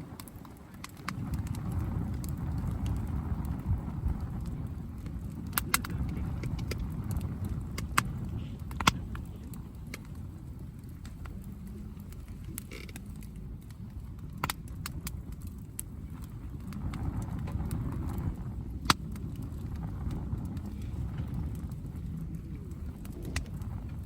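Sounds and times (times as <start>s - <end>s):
campfire crackling: 0.0s - 24.0s
low steady rumble: 0.0s - 24.0s.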